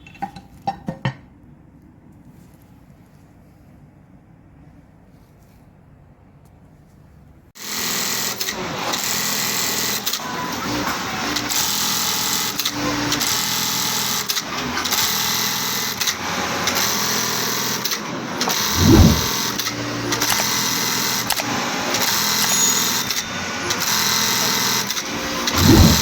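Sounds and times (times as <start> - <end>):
sewing machine chatter: 7.6 - 26.0.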